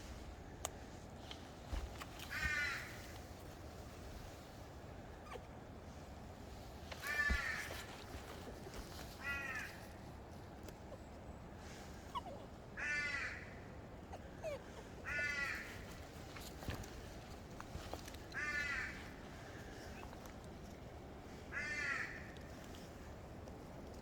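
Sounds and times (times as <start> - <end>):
crow cawing: 2.3 - 3.0, 7.0 - 7.7, 9.2 - 9.8, 12.8 - 13.6, 15.0 - 15.8, 18.3 - 19.0, 21.5 - 22.3.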